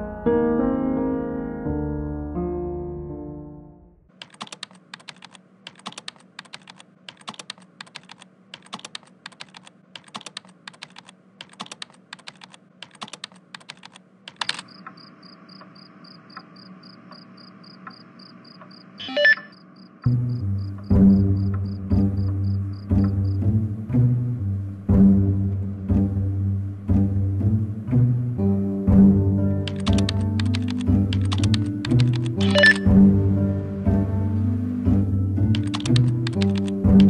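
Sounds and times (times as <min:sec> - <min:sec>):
typing on computer keyboard: 0:04.1 - 0:15.7, 0:29.7 - 0:32.9, 0:35.5 - 0:37.0
faint ticking: 0:04.3 - 0:18.9.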